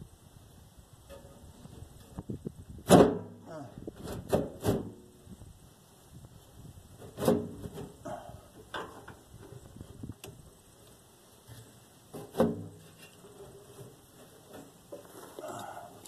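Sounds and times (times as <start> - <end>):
metal clanks and knocks: 8.6 - 9.5.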